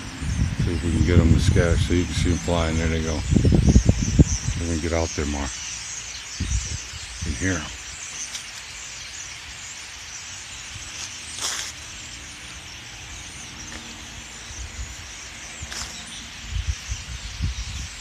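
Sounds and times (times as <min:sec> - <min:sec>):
wind buffeting microphone: 0:00.0 - 0:05.6, 0:06.3 - 0:07.8, 0:13.9 - 0:18.0
flock of blackbirds chattering: 0:00.0 - 0:18.0.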